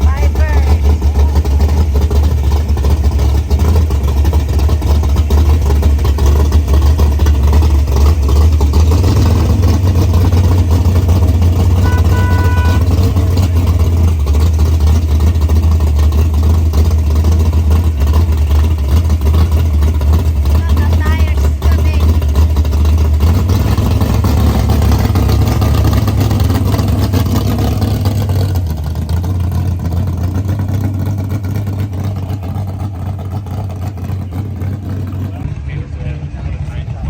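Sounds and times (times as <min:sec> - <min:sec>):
short electronic beep: 0:11.8 - 0:12.9
low rumble with hiss: 0:32.1 - 0:37.0.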